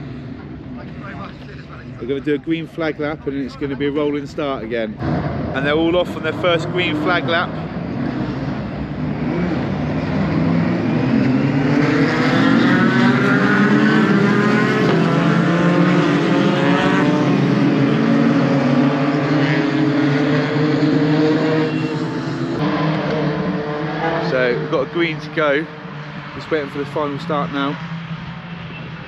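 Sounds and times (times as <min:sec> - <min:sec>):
racing trucks passing: 0:00.0 - 0:29.0.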